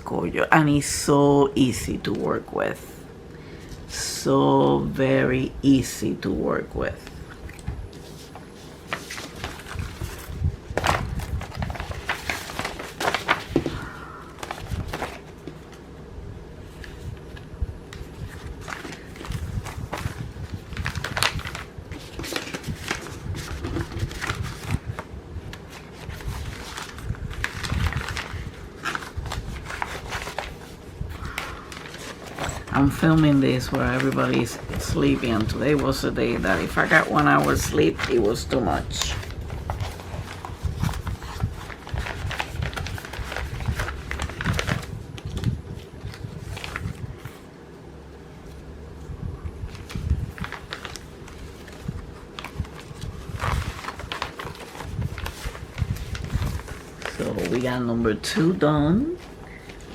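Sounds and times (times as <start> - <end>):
plastic packaging crinkling: 7.3 - 15.9, 16.7 - 47.4, 49.7 - 58.4.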